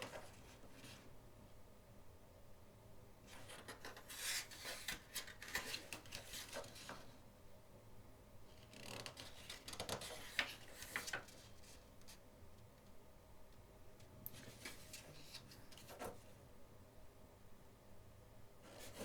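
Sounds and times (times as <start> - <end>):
paper pages rustling: 3.4 - 7.1, 9.1 - 11.8, 14.4 - 16.2.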